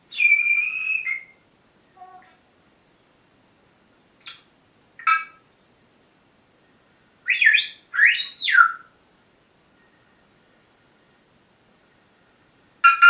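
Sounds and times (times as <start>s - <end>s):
parrot calling: 0.1s - 1.4s, 4.2s - 5.5s, 7.3s - 8.9s.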